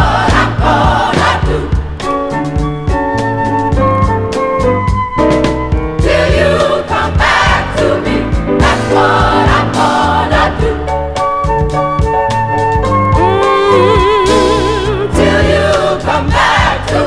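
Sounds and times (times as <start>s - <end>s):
gospel choir singing: 0.0s - 2.5s, 5.9s - 11.6s, 13.2s - 17.0s
steady drum beat: 0.0s - 17.0s.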